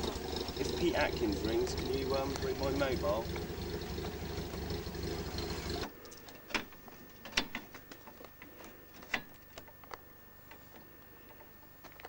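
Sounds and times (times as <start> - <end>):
car engine idling: 0.0 - 5.9.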